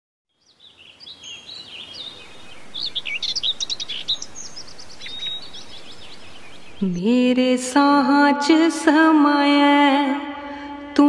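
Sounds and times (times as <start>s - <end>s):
small birds chirping and whistling: 0.4s - 7.1s
faint steady hiss: 0.4s - 11.0s.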